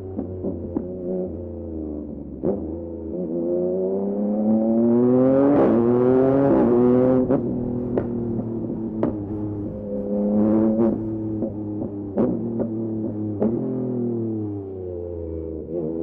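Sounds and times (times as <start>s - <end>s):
exhaust crack: 0.0s - 2.7s, 5.4s - 14.4s
motorcycle engine accelerating: 0.0s - 16.0s.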